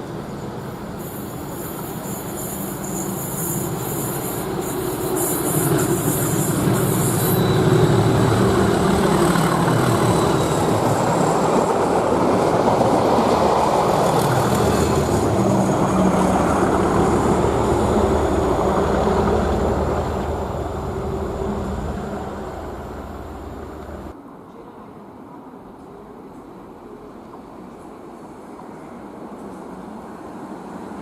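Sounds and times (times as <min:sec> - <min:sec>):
diesel locomotives passing: 0:00.0 - 0:24.2.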